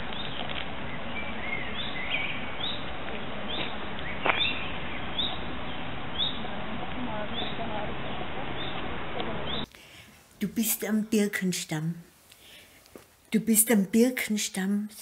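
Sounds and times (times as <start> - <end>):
birds chirping: 0.0 - 9.8
background hiss: 0.0 - 15.0.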